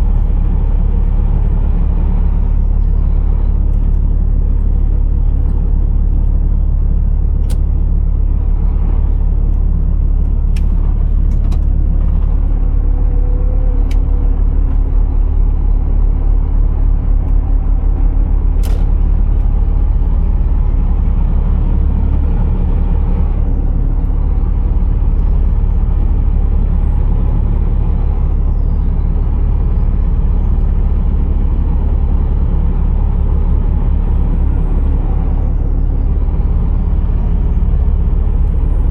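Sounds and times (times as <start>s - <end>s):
truck engine droning: 0.0s - 38.9s.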